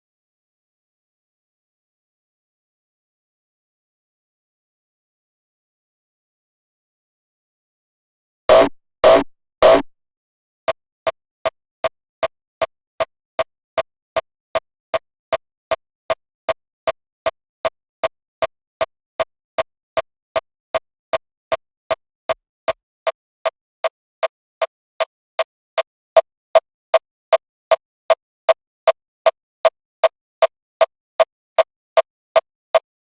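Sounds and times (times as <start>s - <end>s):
electronic kick drum hits: 8.5s - 9.9s.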